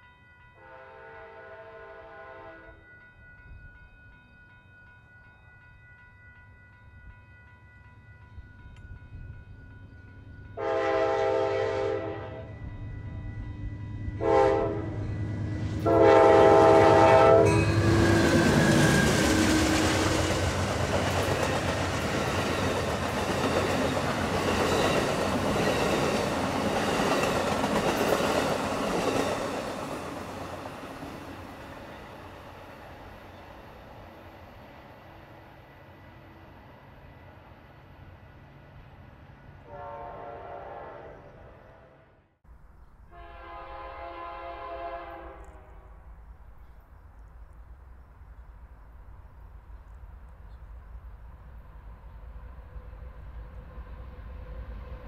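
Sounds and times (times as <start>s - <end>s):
train horn blasts: 0.6s - 2.8s, 10.6s - 12.6s, 14.2s - 20.4s, 39.6s - 42.2s, 43.1s - 46.0s
train wheels rushing past: 10.6s - 35.0s.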